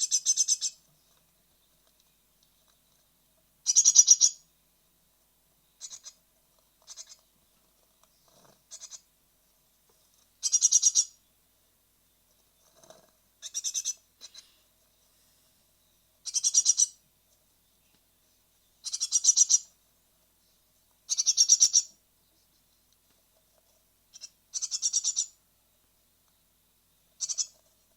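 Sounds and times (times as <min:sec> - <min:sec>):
nestlings chittering begging calls: 0:00.0 - 0:00.8, 0:03.7 - 0:04.4, 0:05.8 - 0:06.2, 0:06.9 - 0:07.2, 0:08.7 - 0:09.0, 0:10.4 - 0:11.1, 0:13.4 - 0:14.4, 0:16.2 - 0:17.0, 0:18.8 - 0:19.7, 0:21.1 - 0:22.0, 0:24.1 - 0:25.4, 0:27.2 - 0:27.6.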